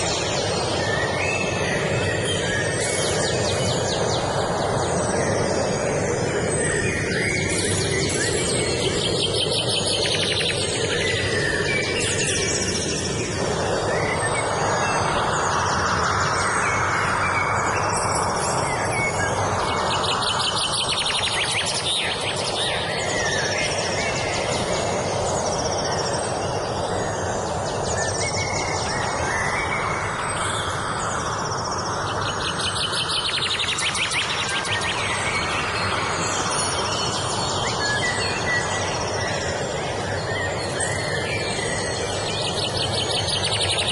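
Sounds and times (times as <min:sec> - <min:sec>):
songbirds trilling and chirping: 0:00.0 - 0:43.9.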